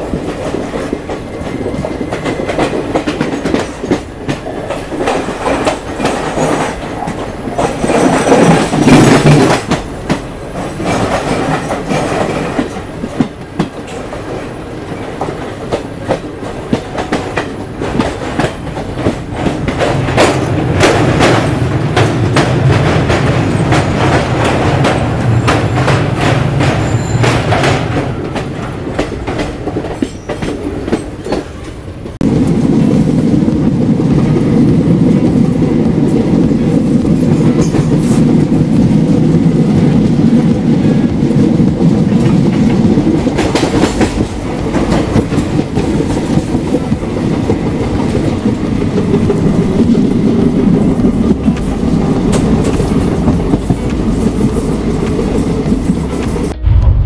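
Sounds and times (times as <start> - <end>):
train rumbling along track: 0.0 - 57.0
wheels clattering over rail joints: 0.1 - 31.8.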